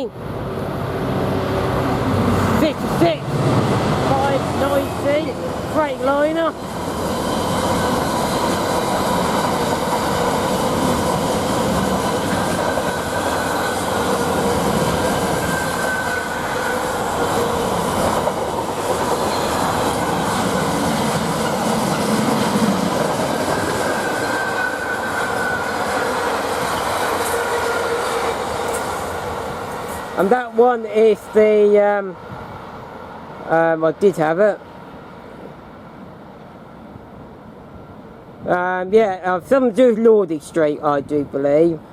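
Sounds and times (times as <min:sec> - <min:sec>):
freight train wagons rumbling: 0:00.0 - 0:32.6
high wheel squeal: 0:12.3 - 0:17.6, 0:23.4 - 0:28.8.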